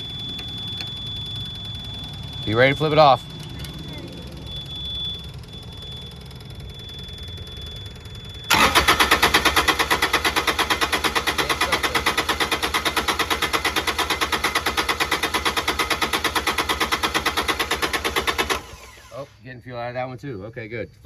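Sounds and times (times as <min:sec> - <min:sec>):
faint high-pitched tone: 0:00.0 - 0:08.5
diesel engine cranking: 0:00.0 - 0:20.1.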